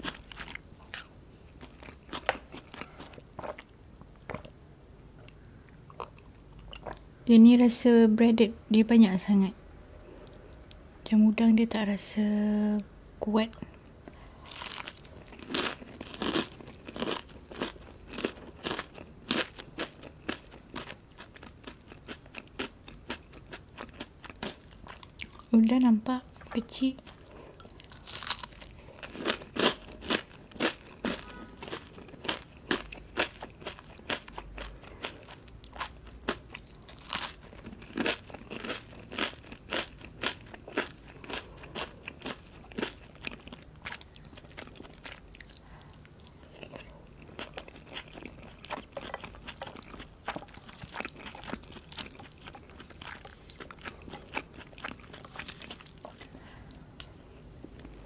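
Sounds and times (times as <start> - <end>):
crisp chewing crunches: 14.5 - 25.6, 26.4 - 56.4.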